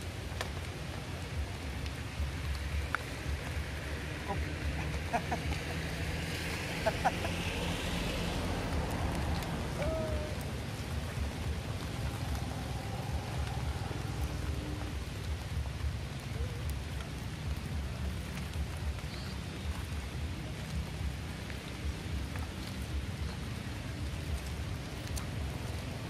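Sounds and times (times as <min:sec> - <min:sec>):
rain falling on puddles: 0:00.0 - 0:26.0.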